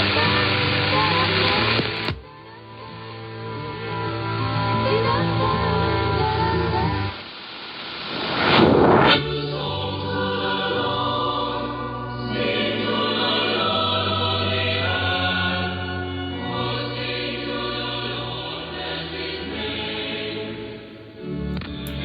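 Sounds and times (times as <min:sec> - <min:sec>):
choir chanting over radio: 0:08.5 - 0:21.3.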